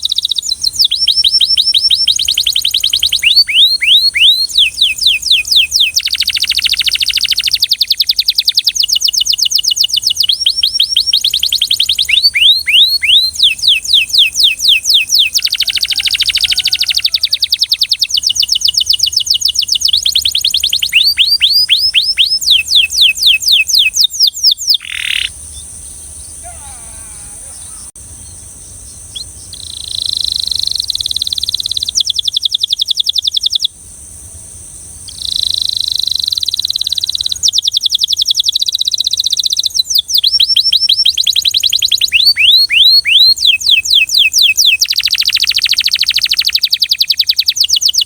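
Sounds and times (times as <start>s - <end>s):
canary buzzing rolls: 0.0s - 24.0s, 24.8s - 37.8s
canary singing: 0.0s - 33.8s, 35.0s - 48.0s.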